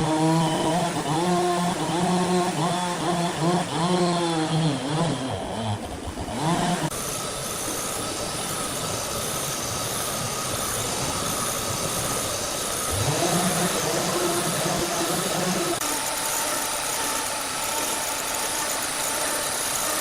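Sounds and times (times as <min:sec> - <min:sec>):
engine pitch rising: 0:00.0 - 0:19.0
heavy machinery running: 0:00.0 - 0:20.0.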